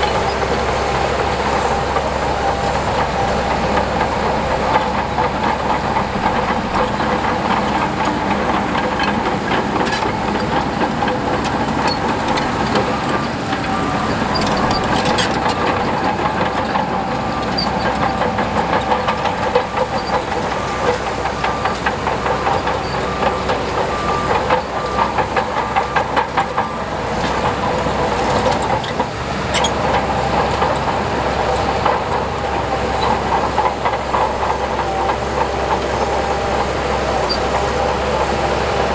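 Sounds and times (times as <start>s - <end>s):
heavy diesel machinery running: 0.0s - 38.9s
reversing alarm beeping: 16.9s - 29.1s.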